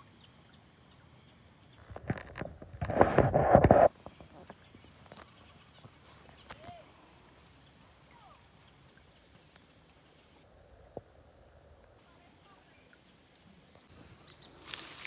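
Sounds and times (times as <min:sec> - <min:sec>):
insects buzzing: 0:11.9 - 0:15.0.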